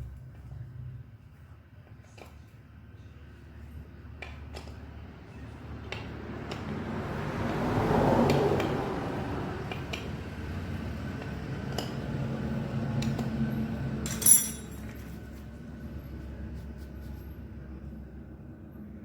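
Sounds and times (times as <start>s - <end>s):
metal tools clinking and tapping: 14.0s - 15.2s.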